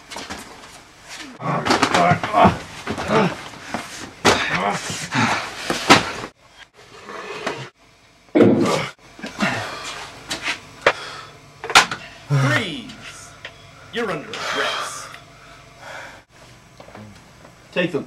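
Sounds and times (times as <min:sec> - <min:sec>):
heavy breathing: 0:09.3 - 0:10.2, 0:10.8 - 0:11.4, 0:13.1 - 0:16.3.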